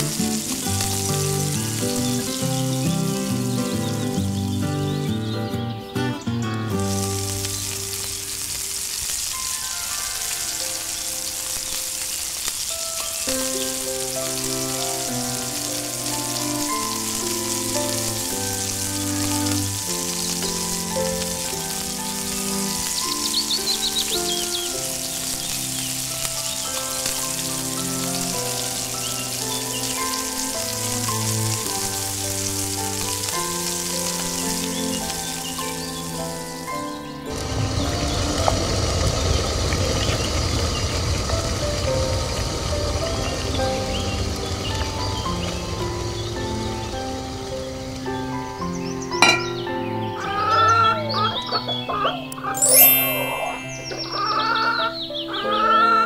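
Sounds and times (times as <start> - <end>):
onion frying in oil: 0.0 - 3.6, 6.8 - 36.7, 37.3 - 47.9
instrumental background music: 0.0 - 37.7, 45.0 - 56.0.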